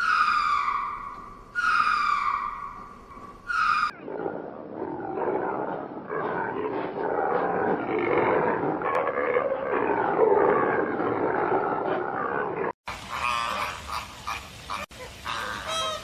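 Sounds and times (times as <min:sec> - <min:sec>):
animal growling vocalisation: 0:03.9 - 0:12.8.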